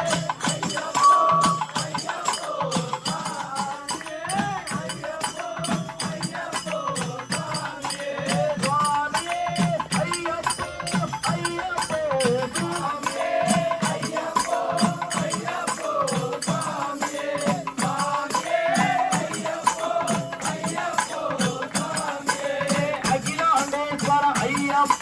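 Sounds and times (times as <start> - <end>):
rattling percussion: 0.0 - 25.0
steady drum beats: 0.0 - 25.0
wavering devotional melody: 0.8 - 2.4.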